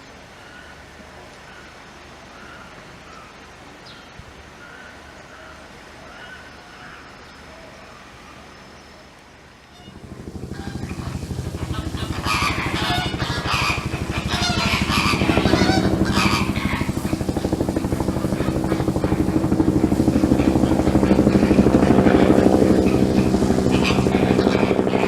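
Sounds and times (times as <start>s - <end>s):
vehicle engine running: 9.9s - 25.0s.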